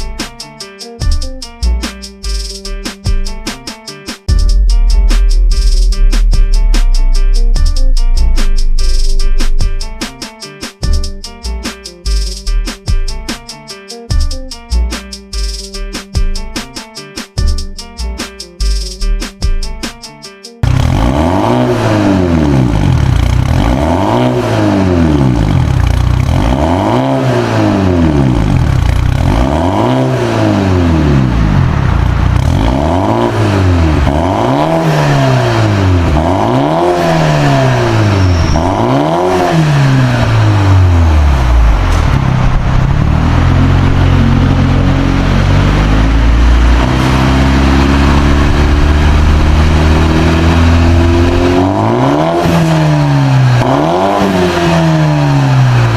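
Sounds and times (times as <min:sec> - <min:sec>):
car engine revving: 0:04.3 - 0:10.2, 0:20.6 - 0:55.9.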